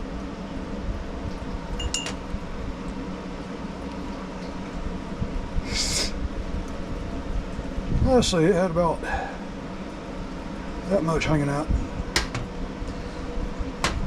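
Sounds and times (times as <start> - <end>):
steady background hum: 0.0 - 14.0
short hiss: 5.6 - 6.2.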